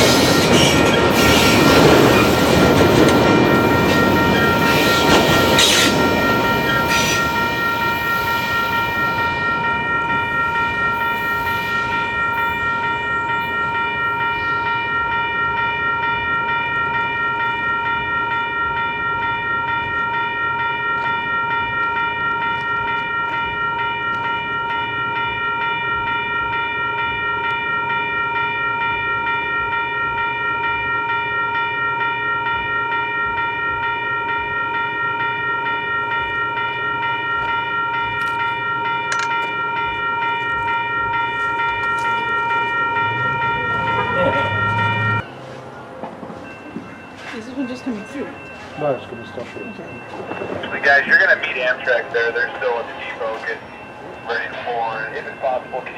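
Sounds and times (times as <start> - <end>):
train rumble: 0.0 - 17.9, 39.1 - 55.9
railroad crossing bell ringing: 0.0 - 55.9.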